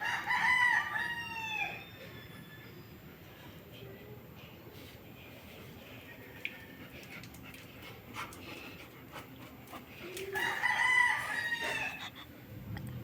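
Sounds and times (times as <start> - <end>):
rooster crowing: 0.0 - 1.9, 10.4 - 12.1.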